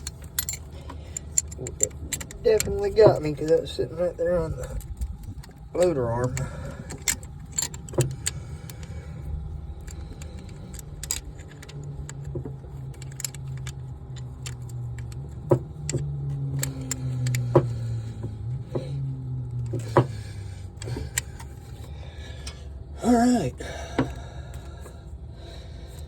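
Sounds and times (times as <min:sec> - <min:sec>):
hand tools clicking and clinking: 0:00.0 - 0:09.0, 0:09.8 - 0:18.9, 0:19.5 - 0:22.6
low steady hum: 0:00.0 - 0:26.0.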